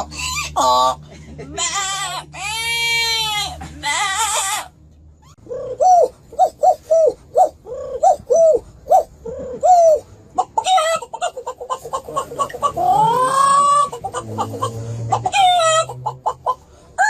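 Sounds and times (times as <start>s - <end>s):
bird cooing calls: 5.3s - 16.5s.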